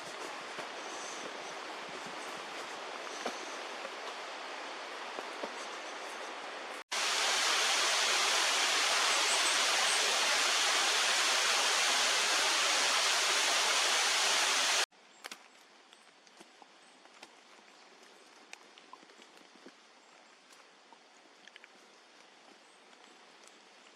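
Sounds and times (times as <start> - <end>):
waterfall rushing: 6.9 - 14.9.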